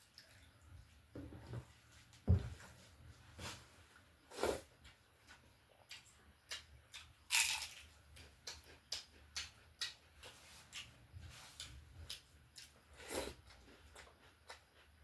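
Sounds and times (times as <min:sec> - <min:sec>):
chewing and smacking: 0:04.9 - 0:12.8, 0:13.4 - 0:15.0.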